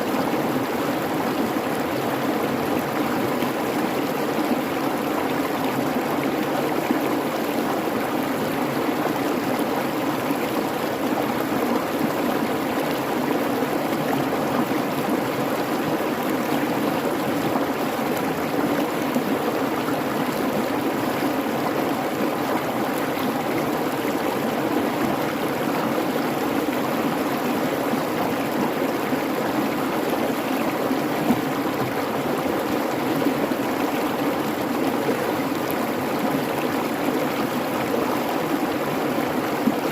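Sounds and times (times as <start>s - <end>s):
creek babbling over rocks: 0.0s - 39.9s.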